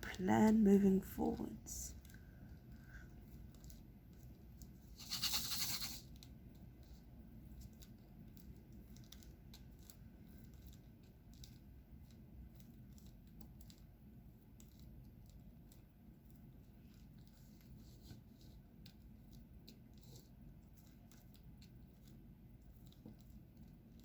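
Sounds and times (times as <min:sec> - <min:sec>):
loud rustling scrape: 0:04.9 - 0:06.0.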